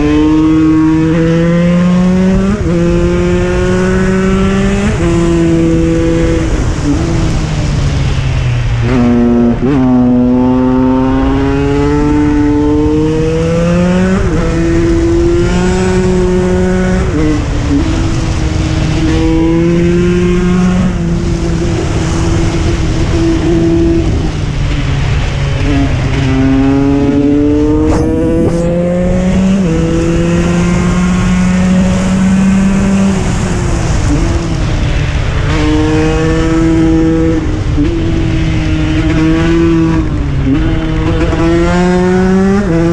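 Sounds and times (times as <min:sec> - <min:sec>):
two-stroke engine revving: 0:25.6 - 0:34.4.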